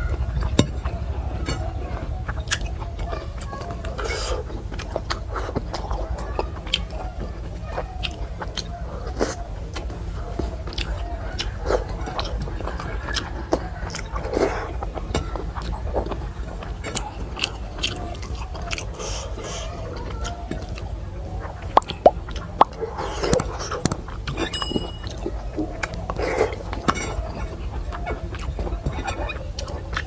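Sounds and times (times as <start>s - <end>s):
person chewing food: 0.0s - 30.0s
steady low hum: 0.0s - 30.0s
wet mouth smacking and clicking: 21.5s - 27.2s.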